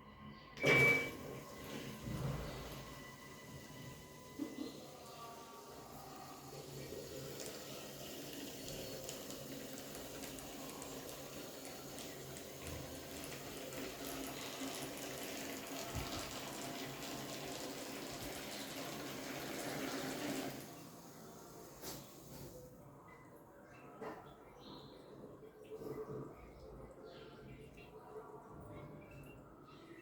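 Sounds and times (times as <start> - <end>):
water running into washing machine: 0.6 - 22.7.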